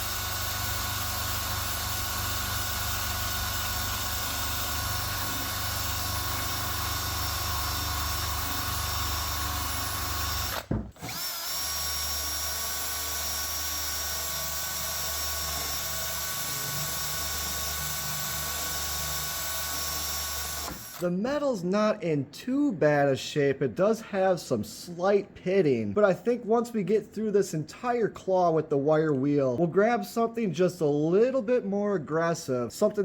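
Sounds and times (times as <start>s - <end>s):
wire wheel power tool whining: 0.0s - 21.1s.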